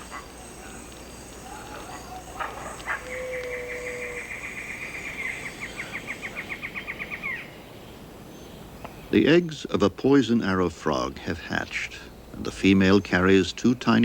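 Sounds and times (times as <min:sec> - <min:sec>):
animal trilling high notes: 0:00.0 - 0:06.4.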